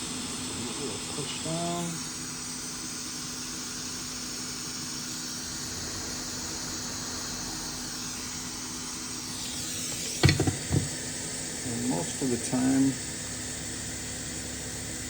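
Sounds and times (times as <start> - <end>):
hot air station hissing: 0.0 - 15.0
sharp knocks: 10.2 - 11.0.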